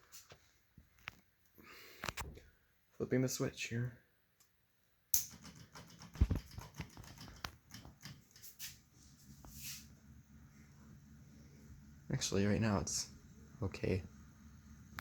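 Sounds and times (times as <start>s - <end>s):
fan clicking and ticking: 5.2s - 15.0s
small fan motor humming: 5.2s - 15.0s.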